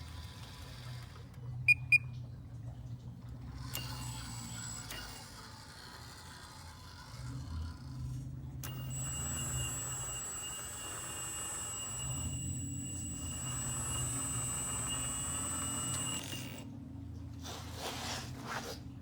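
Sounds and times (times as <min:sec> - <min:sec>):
hydraulic pump whine: 0:03.6 - 0:07.4, 0:08.6 - 0:16.7.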